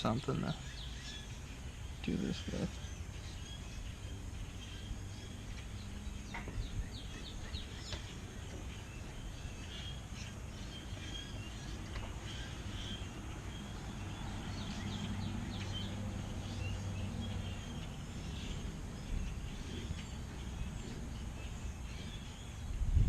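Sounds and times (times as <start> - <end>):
birds chirping: 0.0 - 23.0
low traffic rumble: 0.0 - 23.0
vehicle engine passing: 12.3 - 22.2.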